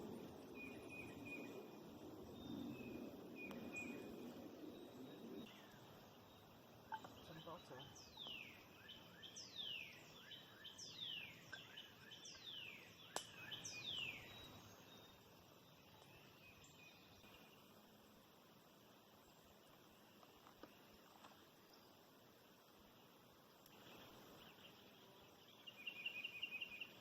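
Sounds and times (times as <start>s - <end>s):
faint outdoor background: 0.0s - 27.0s
small bird chirps: 2.3s - 17.6s, 23.6s - 27.0s.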